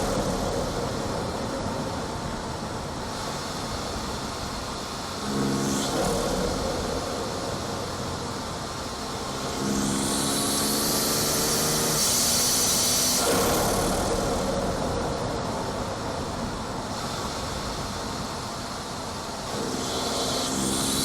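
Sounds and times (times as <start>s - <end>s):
turbo intake hiss: 0.0s - 21.0s.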